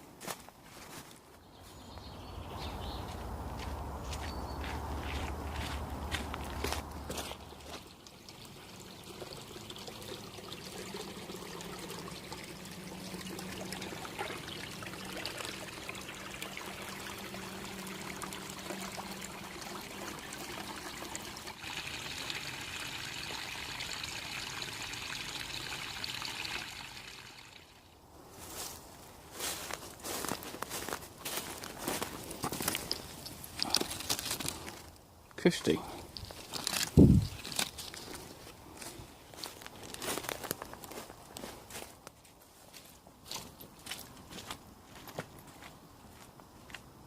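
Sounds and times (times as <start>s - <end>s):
water trickling: 5.6s - 28.0s.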